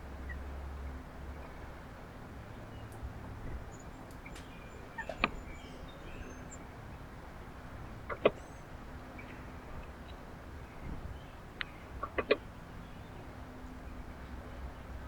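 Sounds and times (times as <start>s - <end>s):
birds chirping: 2.6s - 7.0s.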